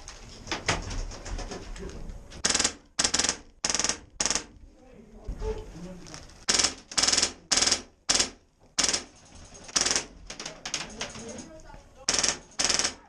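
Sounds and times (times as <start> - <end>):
airsoft gun full-auto bursts: 2.4 - 4.5, 6.5 - 9.1, 9.7 - 10.2, 12.1 - 13.0.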